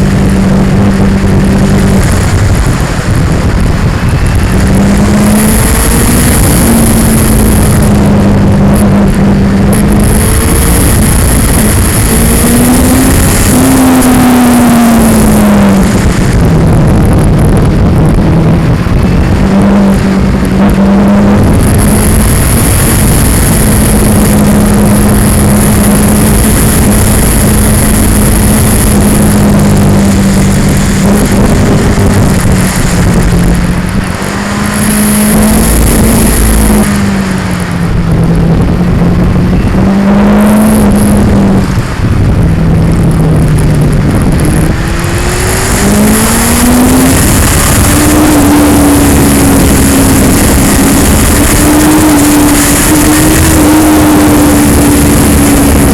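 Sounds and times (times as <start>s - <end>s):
motorcycle engine at road speed: 0.0s - 55.9s
vibration noise on microphone: 0.0s - 55.9s.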